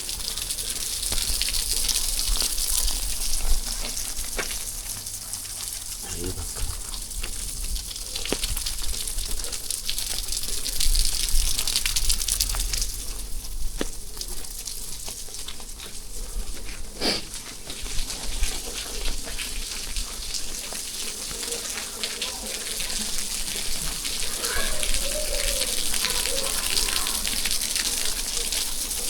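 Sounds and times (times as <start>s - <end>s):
steady rain: 0.0s - 29.0s
water gushing and splashing: 16.8s - 29.0s.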